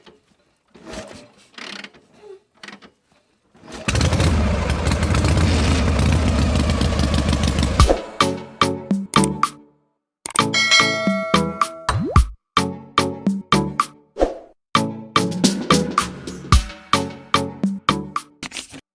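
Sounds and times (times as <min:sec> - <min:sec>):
engine starting and running: 0:03.6 - 0:08.9, 0:15.3 - 0:17.6.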